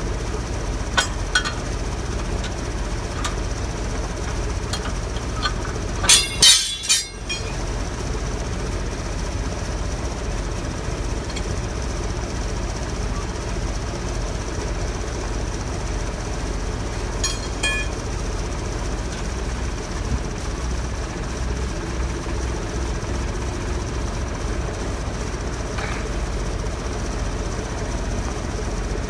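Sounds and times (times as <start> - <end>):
engine running with high whine: 0.0 - 29.0
sharp metallic clinks: 6.0 - 7.6, 17.2 - 18.1.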